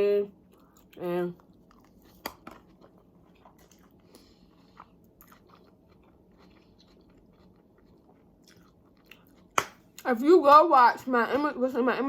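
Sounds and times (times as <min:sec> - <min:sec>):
person chewing: 0:00.5 - 0:10.0.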